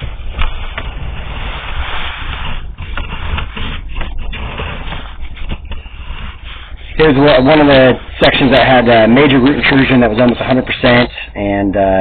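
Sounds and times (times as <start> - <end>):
camera rod scraping through pipe: 0.0 - 7.0.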